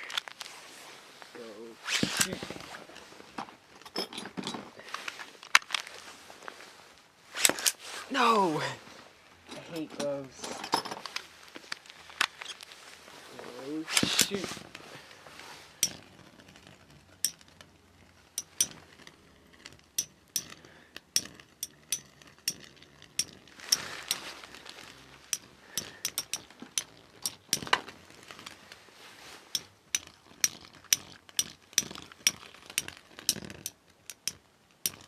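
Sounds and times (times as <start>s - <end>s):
spinning tops grinding scrapes: 13.8s - 28.6s, 29.4s - 35.0s
spinning tops clicking metallically: 15.8s - 24.2s, 25.2s - 27.8s, 29.6s - 35.0s.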